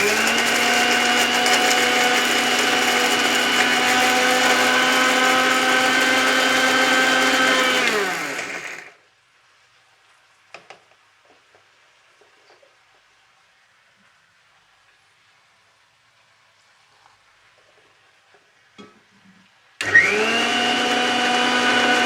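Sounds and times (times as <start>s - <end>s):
mixer grinder running: 0.0s - 9.0s, 19.8s - 22.0s.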